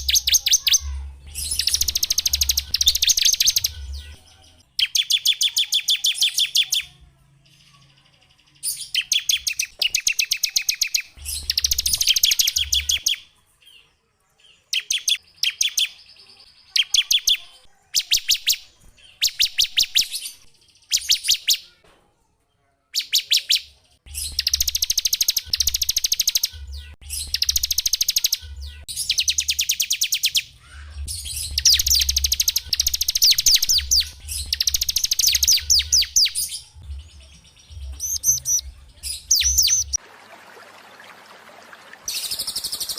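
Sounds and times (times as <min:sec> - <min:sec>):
songbird singing high trills: 0:00.0 - 0:04.0, 0:31.1 - 0:40.0.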